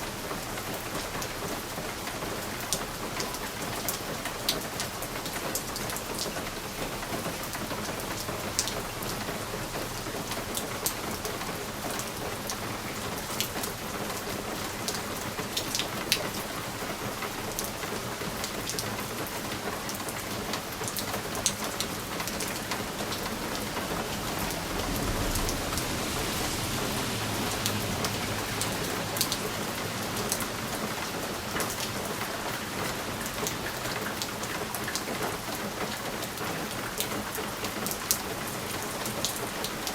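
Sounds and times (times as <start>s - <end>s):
rain on window: 0.0s - 39.9s
low rumble: 23.3s - 28.6s.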